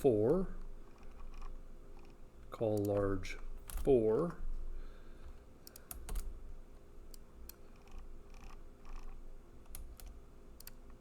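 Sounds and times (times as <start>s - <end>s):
faint steady hum: 0.0s - 11.0s
keyboard keystrokes and clicks: 1.0s - 4.0s, 5.6s - 6.3s, 7.1s - 11.0s.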